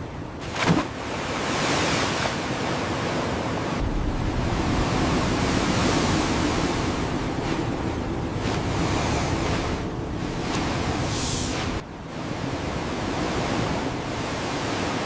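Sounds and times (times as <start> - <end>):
blizzard wind rushing: 3.6 - 15.0.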